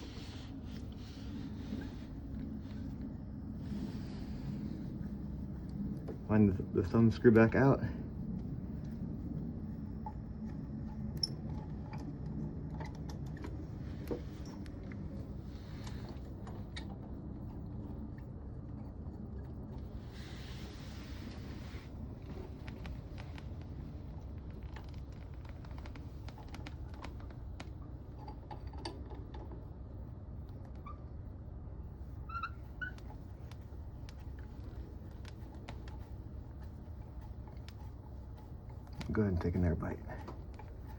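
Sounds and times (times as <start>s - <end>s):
steady low hum: 0.0s - 40.9s
short high squeaks: 32.2s - 33.1s.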